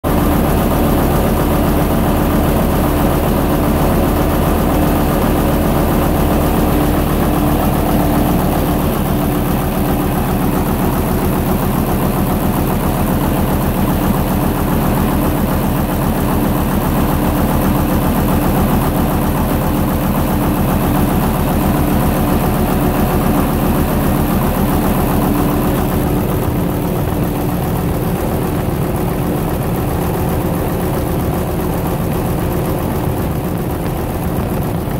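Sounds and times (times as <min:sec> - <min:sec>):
diesel engine running generator: 0:00.0 - 0:34.9.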